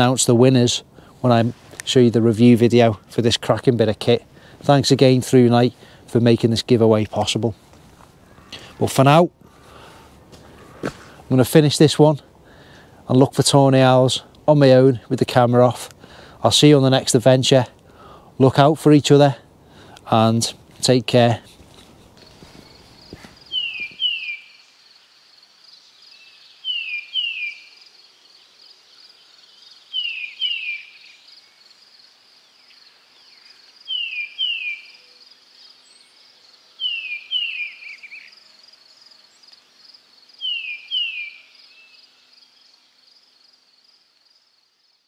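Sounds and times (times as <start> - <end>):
faint high-pitched hiss: 0.0 - 45.0
bird calling falling notes: 22.2 - 24.6.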